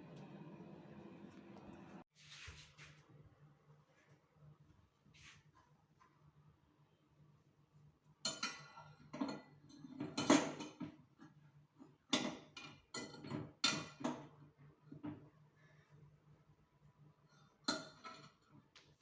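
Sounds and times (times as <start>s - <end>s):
cutlery clinking on a plate: 8.2s - 11.0s, 12.1s - 14.3s.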